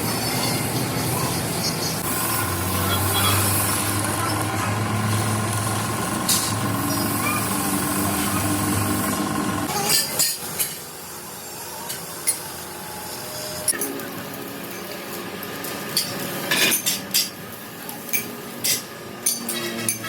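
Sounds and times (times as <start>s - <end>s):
machinery humming: 0.0s - 9.8s.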